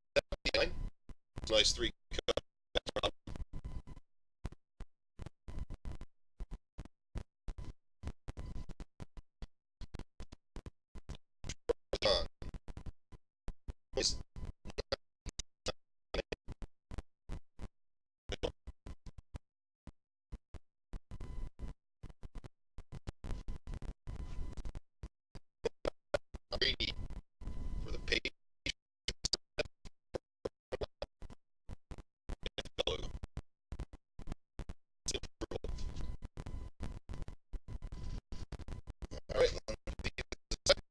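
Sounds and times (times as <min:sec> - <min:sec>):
garbled stuttering audio: 0:00.2 - 0:04.6, 0:09.8 - 0:13.0, 0:14.0 - 0:17.0, 0:18.3 - 0:19.2, 0:25.6 - 0:28.3, 0:29.1 - 0:40.9.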